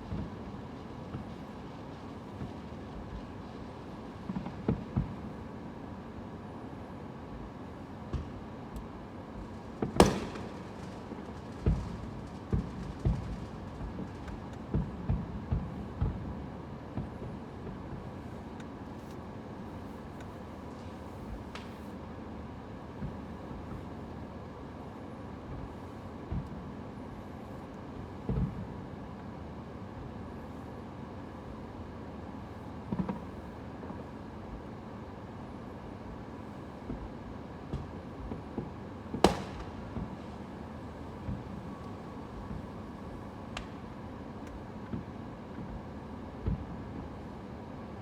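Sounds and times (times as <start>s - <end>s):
background rumble and hiss: 0.0s - 48.0s
dull firework booms: 9.8s - 10.8s, 11.5s - 16.4s, 39.2s - 40.2s
distant firework booms: 9.8s - 11.0s, 39.2s - 40.2s
firework bang: 9.8s - 16.2s, 39.2s - 40.3s.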